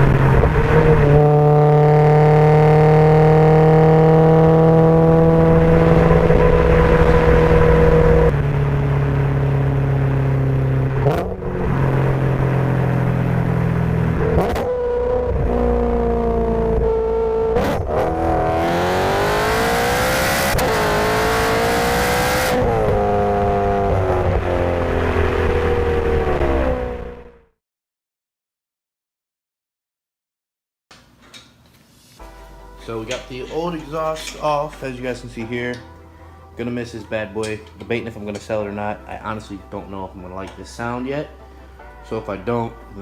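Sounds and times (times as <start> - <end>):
car engine revving: 0.0 - 27.5.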